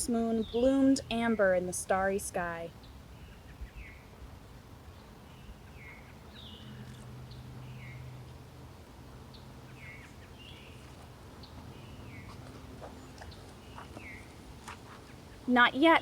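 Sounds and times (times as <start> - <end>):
bird chirping: 4.8 - 8.2, 9.3 - 16.0.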